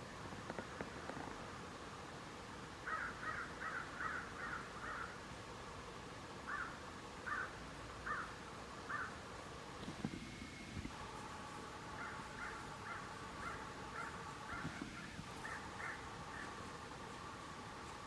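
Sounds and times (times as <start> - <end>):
bird calling: 2.8 - 5.2, 6.5 - 9.2, 10.0 - 17.4.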